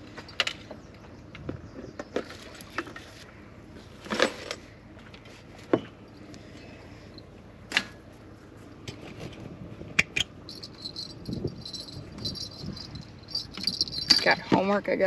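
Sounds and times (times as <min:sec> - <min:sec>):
fishing gear clicking and rattling: 0:10.0 - 0:14.8.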